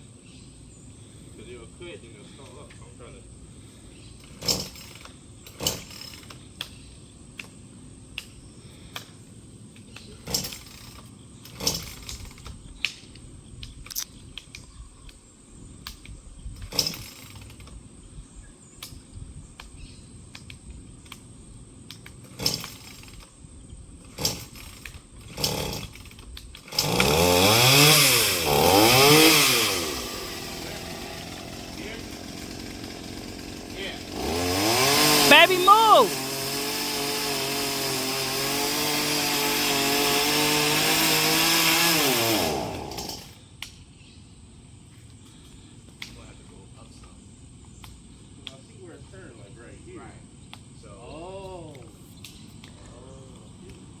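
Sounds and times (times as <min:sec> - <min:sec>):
chainsaw revving: 0:04.2 - 0:06.4, 0:10.2 - 0:12.5, 0:16.7 - 0:17.6, 0:22.3 - 0:23.3, 0:24.0 - 0:43.4.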